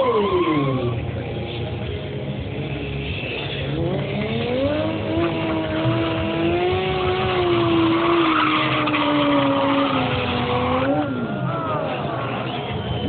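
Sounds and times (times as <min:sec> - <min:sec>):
motorcycle engine revving: 0:03.6 - 0:11.1.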